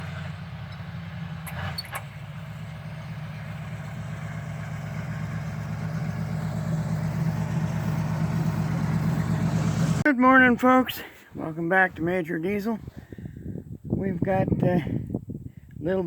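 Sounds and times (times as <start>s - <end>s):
vehicle engine idling: 0.0s - 10.1s.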